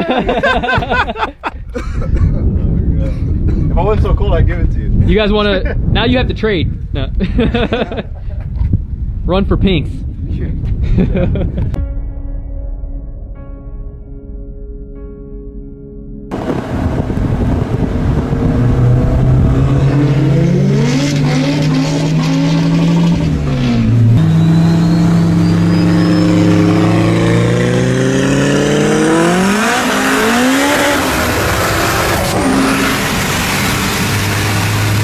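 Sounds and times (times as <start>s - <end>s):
wind rush: 0.3s - 11.8s, 16.3s - 24.4s
race car engines revving: 16.3s - 35.0s.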